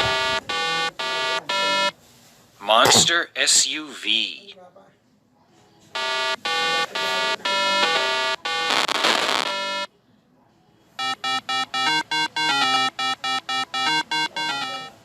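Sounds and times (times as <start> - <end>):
beeping synthesizer notes: 0.0 - 1.9, 11.0 - 15.0
bright electronic tones: 11.0 - 15.0.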